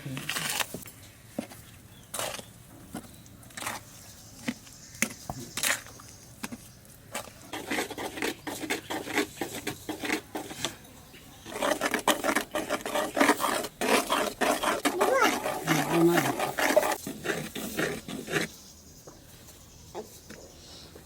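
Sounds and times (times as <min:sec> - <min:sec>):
utensil scraping a pot: 0:07.1 - 0:10.8, 0:11.4 - 0:18.6.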